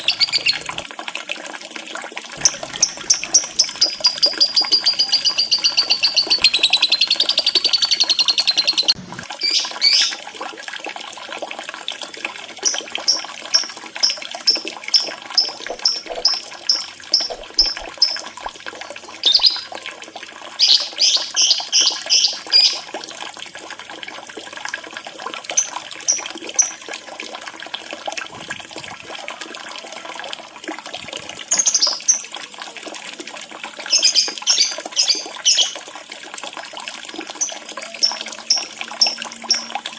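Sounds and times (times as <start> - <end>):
bird chattering: 0.0 - 0.8, 2.4 - 10.1, 14.5 - 18.4, 19.2 - 19.7
bird chirping: 0.0 - 0.8, 2.4 - 10.2, 13.6 - 18.4, 19.2 - 19.7, 20.6 - 22.8
bird trilling: 0.0 - 0.8, 2.4 - 10.1, 15.0 - 18.2, 19.2 - 19.7
running water: 0.0 - 39.9.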